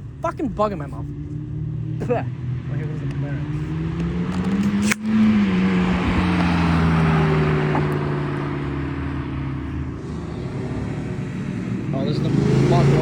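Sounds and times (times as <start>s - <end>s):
car engine pulling away: 0.0s - 13.0s
sharp click: 4.3s - 5.3s.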